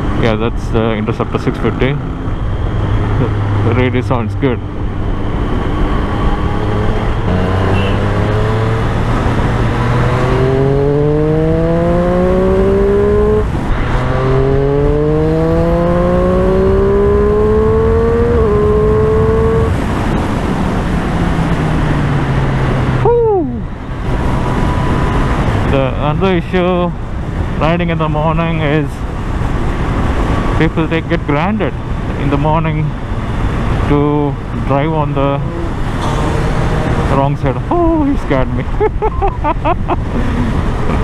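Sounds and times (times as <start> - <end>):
motorcycle engine accelerating: 1.2 - 23.2, 33.1 - 38.0.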